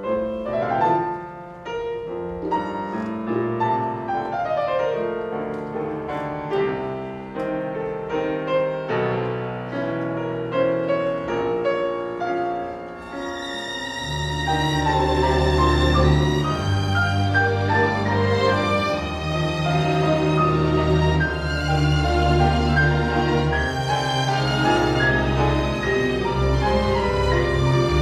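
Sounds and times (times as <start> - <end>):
solo piano playing: 0.0 - 28.0.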